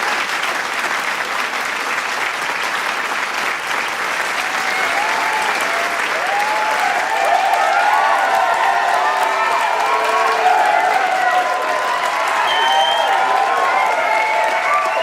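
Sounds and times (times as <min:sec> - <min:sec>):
crowd applauding: 0:00.0 - 0:15.0
cheers and whoops: 0:04.3 - 0:15.0.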